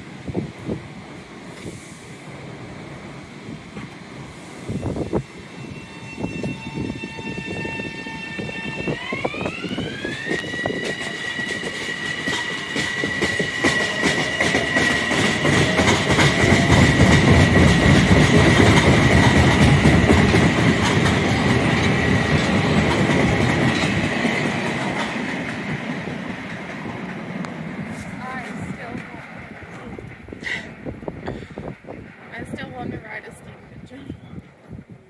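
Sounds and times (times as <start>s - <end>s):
train rumble: 0.0s - 35.0s
train motor whine: 3.8s - 25.2s
wheels clicking over rail joints: 9.0s - 30.4s.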